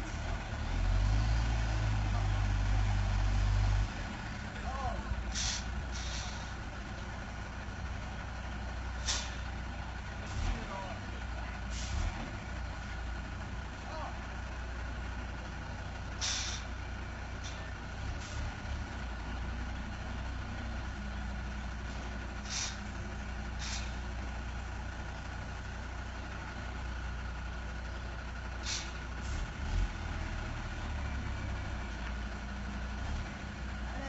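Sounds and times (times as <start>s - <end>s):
truck diesel engine running: 0.0s - 34.0s
air brake hisses: 5.3s - 6.5s, 9.0s - 9.4s, 16.2s - 16.7s, 22.4s - 22.9s, 23.6s - 24.0s, 28.6s - 29.1s.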